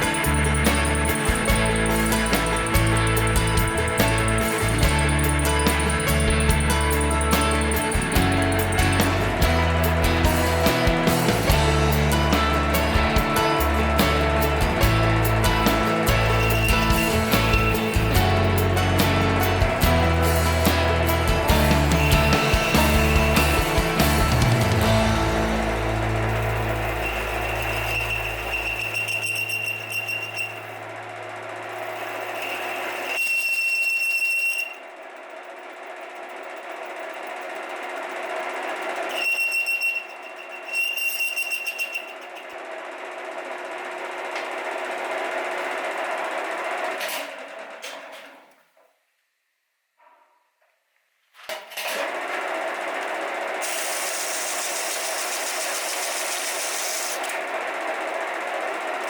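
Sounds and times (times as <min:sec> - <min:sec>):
electric power tool whining: 0:00.0 - 0:35.7, 0:51.8 - 0:59.0
small power tool humming: 0:52.6 - 0:59.0.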